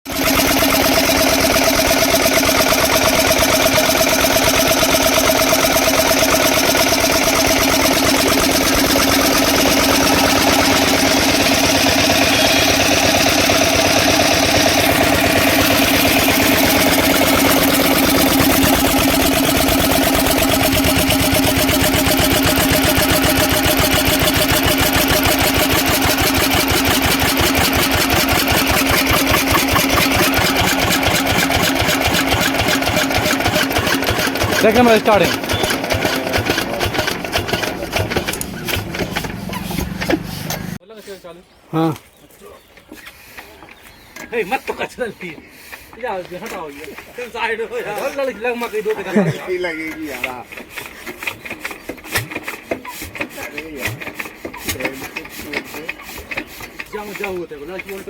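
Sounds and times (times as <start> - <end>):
stationary engine running: 0.1 - 40.8.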